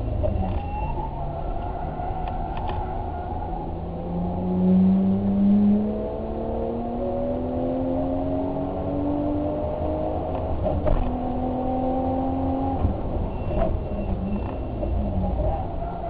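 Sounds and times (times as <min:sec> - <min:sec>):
vehicle engine accelerating: 0:03.6 - 0:15.8.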